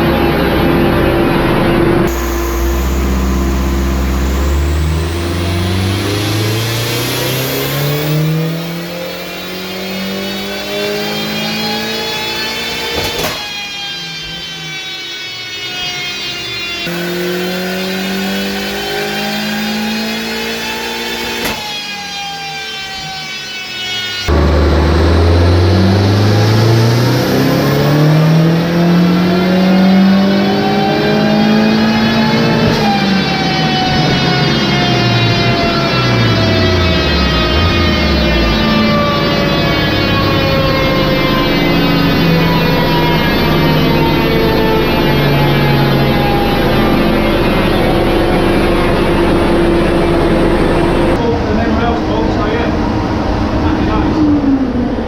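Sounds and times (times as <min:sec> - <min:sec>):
turbocharged engine revving hard: 0:00.0 - 0:14.0, 0:14.8 - 0:23.3, 0:24.2 - 0:54.5
short sharp burst of noise: 0:02.1 - 0:09.4.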